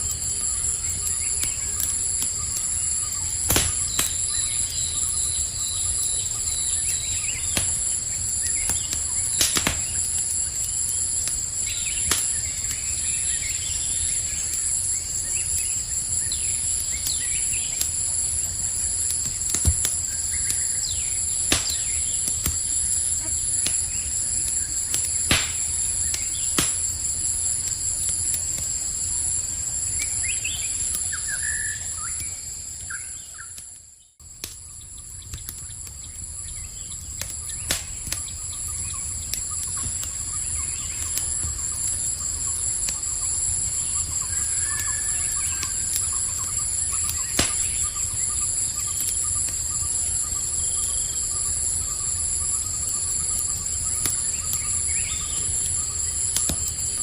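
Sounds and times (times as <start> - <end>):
campfire crackling and popping: 0.0 - 57.0
crickets chirring: 0.0 - 57.0
bird chirps: 30.0 - 33.6.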